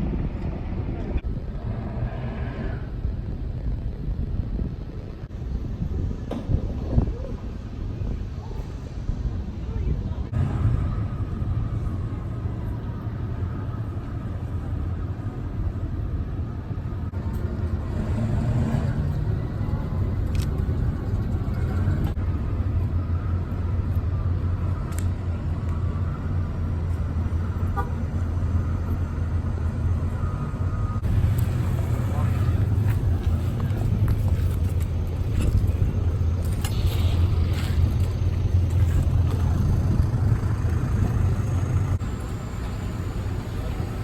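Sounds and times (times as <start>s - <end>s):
boat engine droning: 10.1s - 44.0s.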